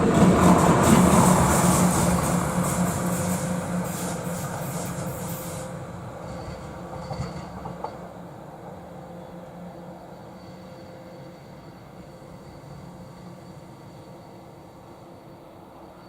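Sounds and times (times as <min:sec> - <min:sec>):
train wheels rattling on rails: 0:00.0 - 0:09.0.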